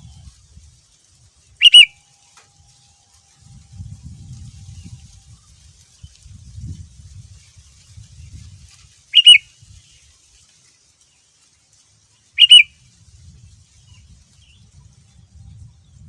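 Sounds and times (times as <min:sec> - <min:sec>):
bird calls: 0:01.6 - 0:02.4, 0:09.1 - 0:09.4, 0:12.4 - 0:12.7.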